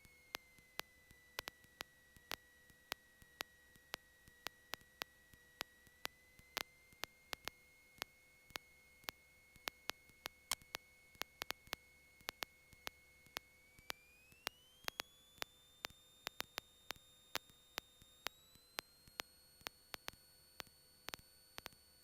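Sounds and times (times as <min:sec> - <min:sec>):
thin steady whine: 0:00.0 - 0:22.0
sharp electrical clicks: 0:14.4 - 0:21.8.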